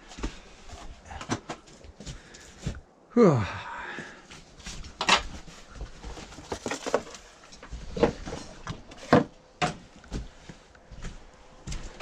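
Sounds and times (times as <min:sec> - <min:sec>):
debris knocking and clunking: 0:06.0 - 0:09.9.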